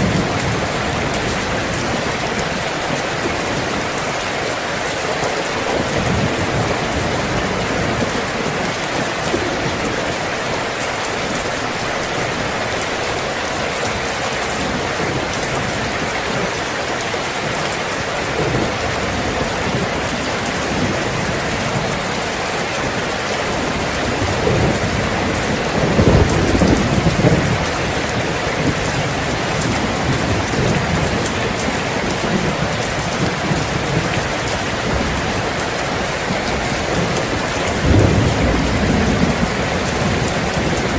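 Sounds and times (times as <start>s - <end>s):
steady rain falling: 0.0s - 40.9s
low rumble of thunder: 22.9s - 40.9s.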